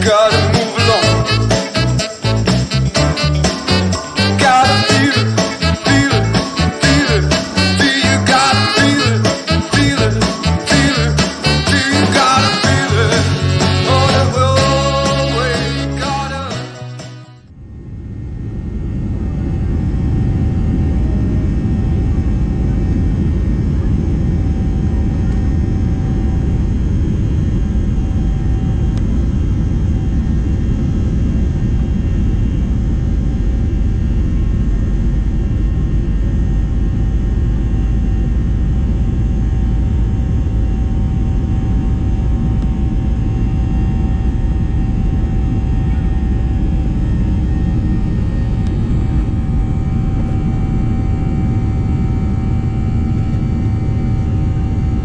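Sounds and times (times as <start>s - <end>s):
jet engines rushing in cabin: 17.5s - 55.0s.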